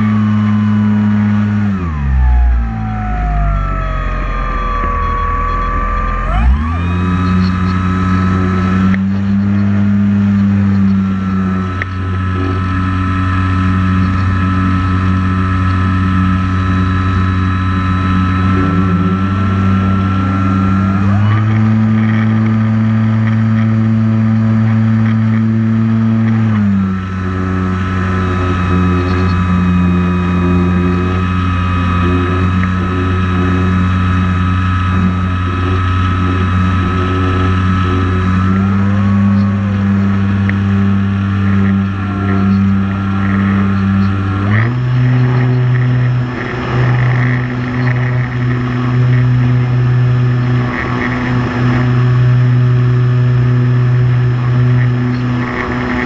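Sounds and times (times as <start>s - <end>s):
drone propeller motors whining: 0.0s - 56.0s.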